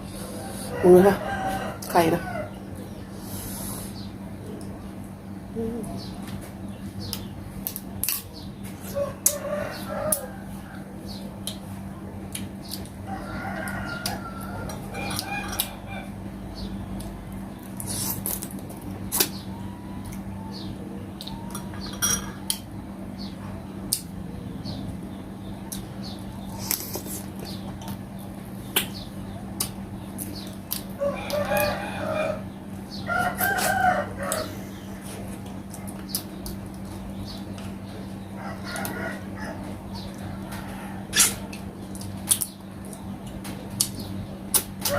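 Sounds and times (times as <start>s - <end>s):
steady low hum: 0.0s - 44.9s
rooster crowing: 0.2s - 2.6s, 8.9s - 11.0s, 13.0s - 16.2s, 30.9s - 34.7s, 38.4s - 41.2s
eating clicks and smacks: 23.9s - 24.2s, 28.7s - 31.5s, 35.3s - 37.7s, 41.2s - 44.9s.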